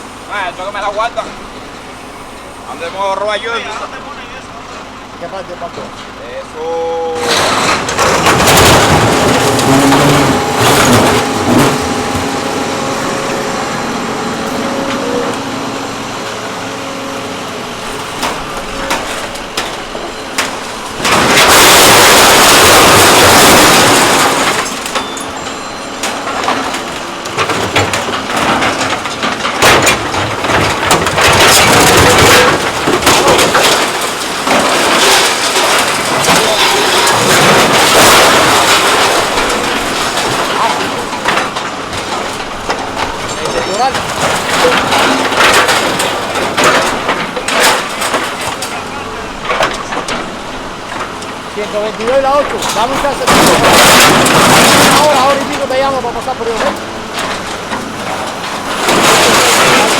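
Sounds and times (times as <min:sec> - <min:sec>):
truck machinery noise: 0:00.0 - 0:59.9
rushing blast: 0:07.1 - 0:25.1.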